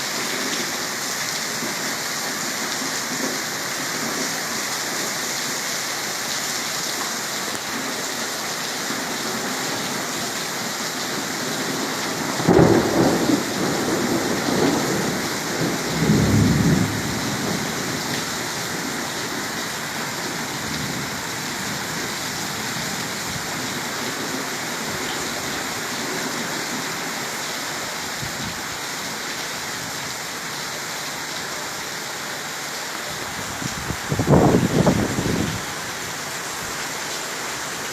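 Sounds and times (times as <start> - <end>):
heavy rain: 0.0 - 37.9
rolling thunder: 12.4 - 18.1, 33.7 - 35.7.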